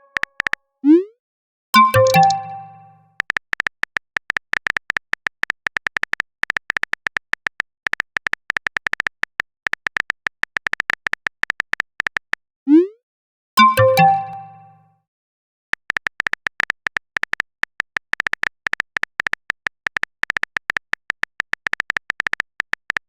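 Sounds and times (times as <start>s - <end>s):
phone keyboard typing clicks: 0.0s - 0.6s, 1.8s - 12.4s, 13.6s - 14.7s, 15.8s - 23.0s
notification chime: 1.8s - 3.0s, 13.6s - 14.8s.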